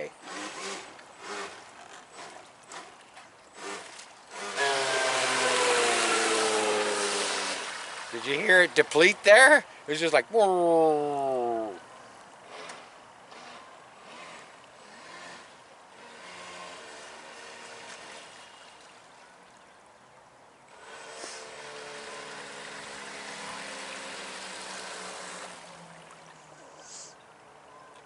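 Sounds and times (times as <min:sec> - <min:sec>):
electric boat motor humming: 0:00.0 - 0:08.8, 0:11.4 - 0:19.4, 0:20.7 - 0:28.0
water rushing: 0:00.0 - 0:11.8, 0:14.5 - 0:27.7.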